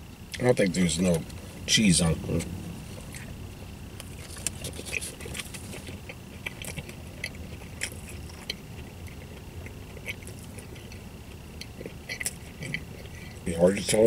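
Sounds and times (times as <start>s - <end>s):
person chewing: 3.9s - 13.4s.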